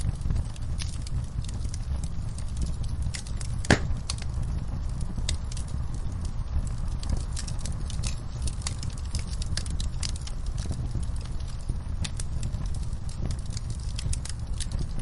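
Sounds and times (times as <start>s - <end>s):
low rumble of flames: 0.0s - 15.0s
wood fire crackling: 0.0s - 15.0s
sharp pops: 3.6s - 4.1s.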